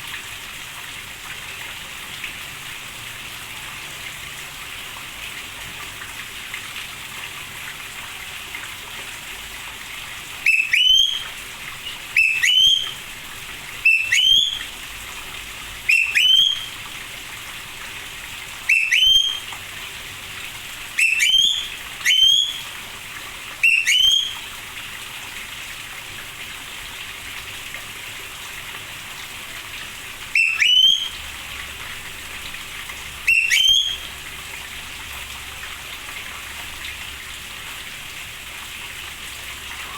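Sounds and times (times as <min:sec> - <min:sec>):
rain hiss: 0:00.0 - 0:39.9
bird upward whistled call: 0:10.4 - 0:13.0, 0:13.8 - 0:14.7, 0:15.9 - 0:16.8, 0:18.7 - 0:19.5, 0:21.0 - 0:22.7, 0:23.6 - 0:24.5, 0:30.4 - 0:31.2, 0:33.3 - 0:34.1.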